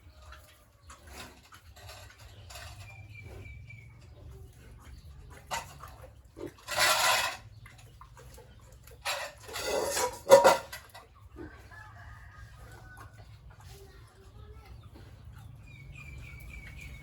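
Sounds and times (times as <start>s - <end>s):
pigs squealing: 9.4s - 10.8s.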